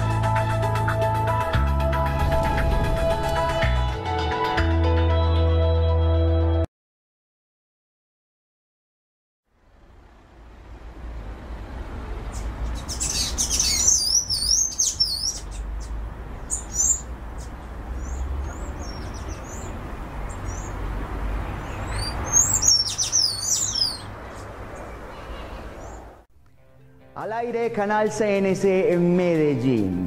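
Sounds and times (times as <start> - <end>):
low outdoor rumble: 9.5 - 13.1, 23.9 - 26.3
small birds chirping: 12.0 - 26.2.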